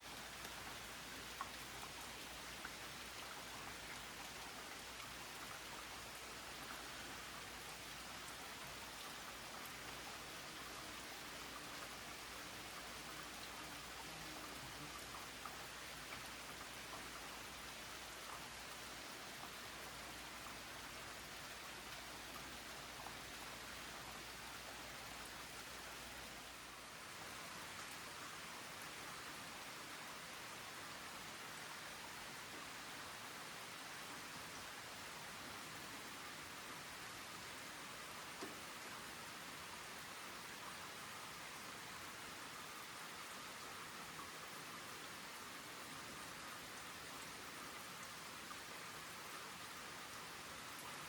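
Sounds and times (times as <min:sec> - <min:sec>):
steady rain hiss: 0:00.0 - 0:51.0
faint drip ticks: 0:00.1 - 0:26.6, 0:38.2 - 0:39.1.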